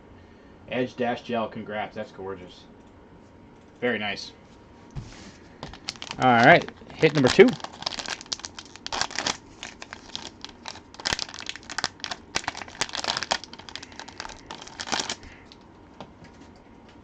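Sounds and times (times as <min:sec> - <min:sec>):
plastic packaging crinkling: 0:05.6 - 0:15.7.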